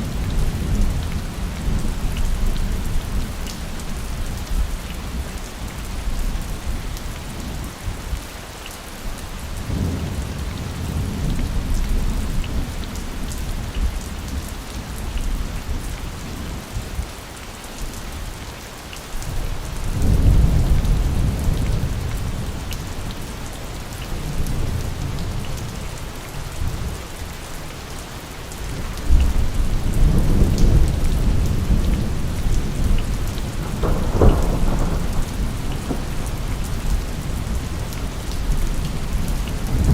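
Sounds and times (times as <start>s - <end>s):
heavy rain falling: 0.0s - 39.9s
rolling thunder: 19.9s - 22.6s, 29.0s - 39.9s.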